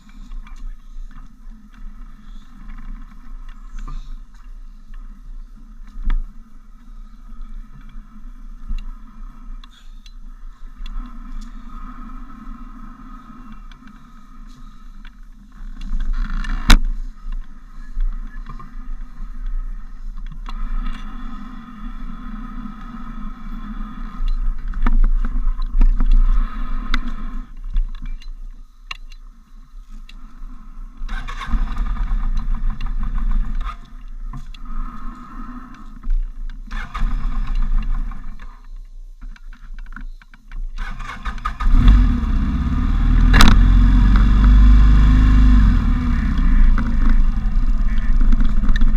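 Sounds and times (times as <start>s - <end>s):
motorcycle engine running: 41.6s - 48.9s.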